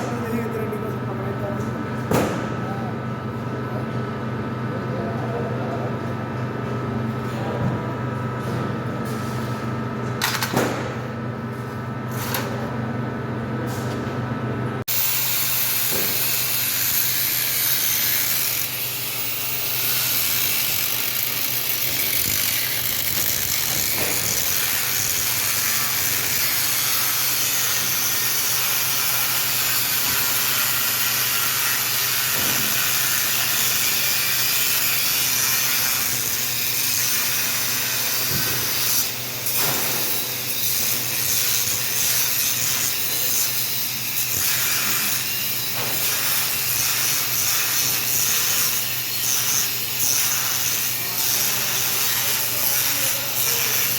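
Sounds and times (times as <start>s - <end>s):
workshop tool hissing: 14.9s - 53.9s.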